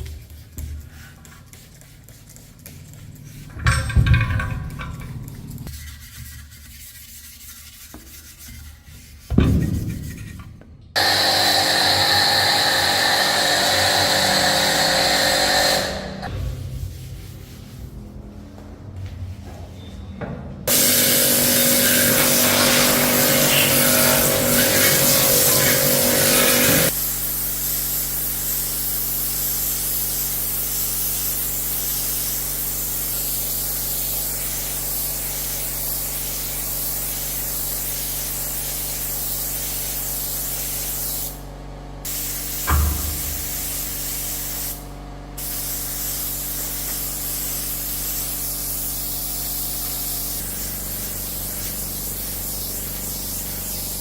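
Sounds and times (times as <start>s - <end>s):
thump: 9.3s - 10.2s, 42.7s - 43.5s
spray gun hissing: 11.0s - 16.3s, 20.7s - 41.4s, 42.1s - 44.8s, 45.4s - 54.0s.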